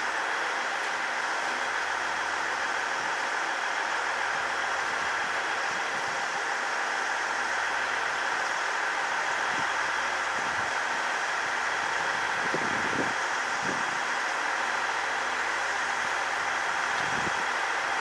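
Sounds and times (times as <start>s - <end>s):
train machinery hum and hiss: 0.0s - 18.0s.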